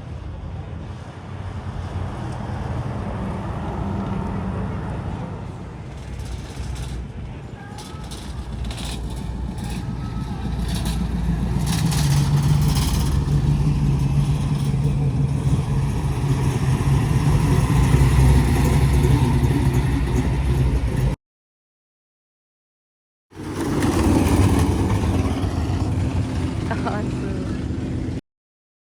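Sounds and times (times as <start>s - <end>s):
classic car engine running: 1.8s - 21.2s, 23.4s - 28.2s.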